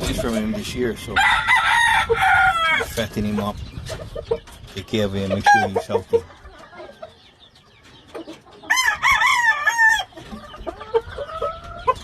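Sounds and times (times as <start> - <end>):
rooster crowing: 1.2 - 2.8, 8.7 - 10.1.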